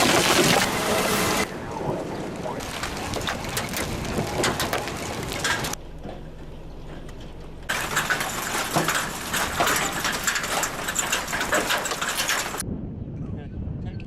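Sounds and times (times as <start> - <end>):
hailstones pelting hard surface: 0.0 - 0.7, 2.6 - 5.8, 7.7 - 12.6.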